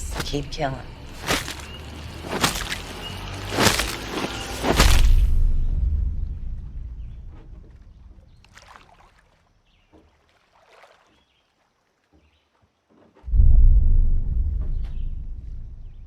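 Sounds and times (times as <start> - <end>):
deep booming hits: 13.3 - 16.0.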